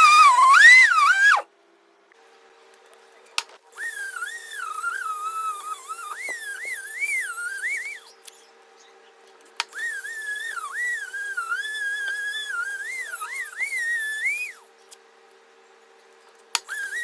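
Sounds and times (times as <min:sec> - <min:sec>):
high whistled tune: 0:00.0 - 0:01.4, 0:03.8 - 0:08.1, 0:09.8 - 0:14.6, 0:16.7 - 0:17.0
faint steady hum: 0:00.0 - 0:17.0.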